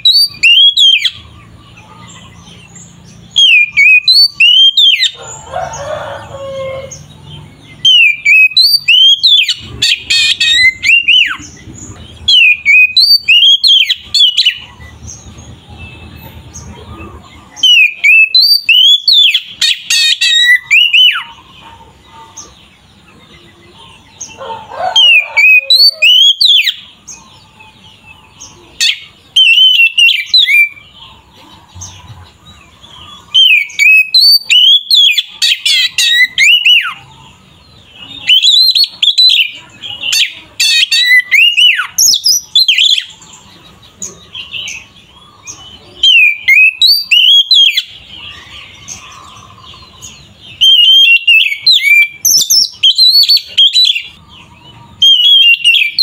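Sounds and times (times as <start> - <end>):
bird singing whistled notes: 0.0 - 5.2, 7.7 - 16.4, 17.6 - 21.3, 28.8 - 30.9, 33.2 - 37.0, 40.2 - 43.2, 44.6 - 48.0, 50.5 - 54.2, 55.0 - 56.0.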